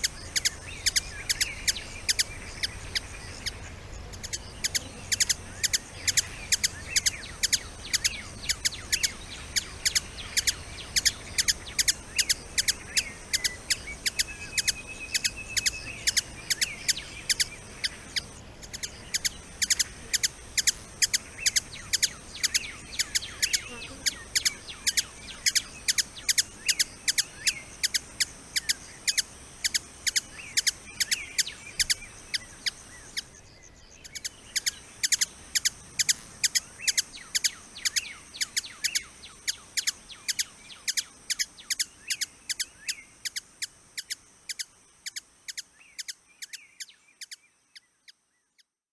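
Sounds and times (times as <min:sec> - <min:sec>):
high-pitched insect buzz: 0:00.0 - 0:03.6, 0:04.3 - 0:33.4, 0:34.2 - 0:46.6
birds chirping: 0:00.0 - 0:47.9.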